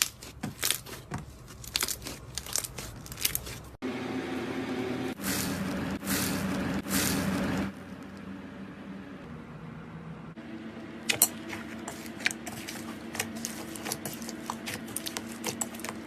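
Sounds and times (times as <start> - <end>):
slime crackling: 0.0 - 3.8, 11.1 - 16.0
squishing rushes: 0.0 - 3.8, 11.1 - 16.0
steady low hum: 3.8 - 16.0.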